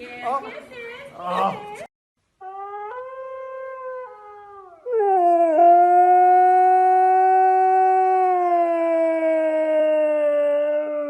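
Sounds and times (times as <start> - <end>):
puppy howling: 2.4 - 11.0.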